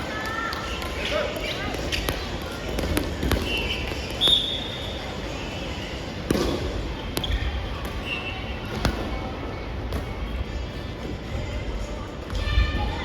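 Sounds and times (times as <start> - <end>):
shoes squeaking on court floor: 0.5 - 9.2.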